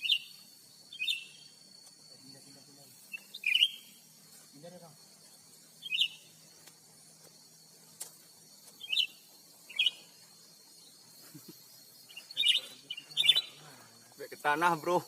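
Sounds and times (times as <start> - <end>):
bird high chirps: 0.0 - 1.6, 3.1 - 4.1, 5.8 - 6.6, 8.7 - 11.1, 11.8 - 13.6.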